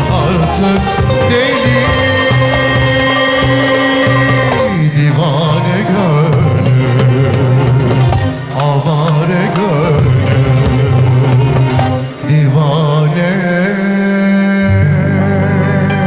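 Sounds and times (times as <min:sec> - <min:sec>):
light percussion: 0:00.0 - 0:04.8, 0:06.2 - 0:12.2
steady low bass line: 0:00.0 - 0:12.4
ensemble playing ornamented melody: 0:00.0 - 0:12.5.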